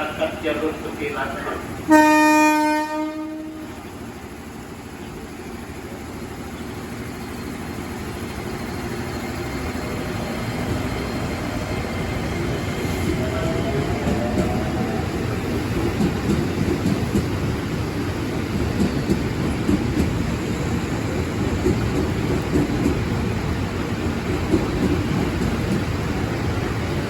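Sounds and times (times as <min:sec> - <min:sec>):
train rumbling: 0:00.0 - 0:27.0
train horn: 0:01.9 - 0:03.8.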